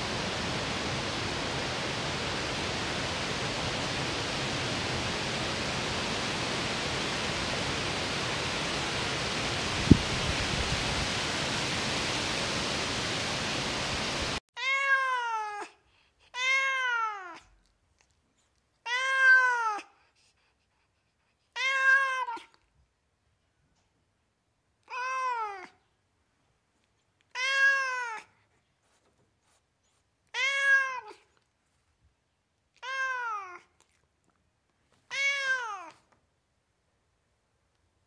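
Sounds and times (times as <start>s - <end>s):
steady hiss: 0.0s - 14.4s
cat meowing: 14.6s - 15.7s, 16.4s - 17.4s, 18.9s - 19.9s, 21.6s - 22.6s, 24.8s - 25.7s, 27.3s - 28.3s, 30.3s - 31.3s, 32.7s - 33.7s, 35.1s - 36.0s.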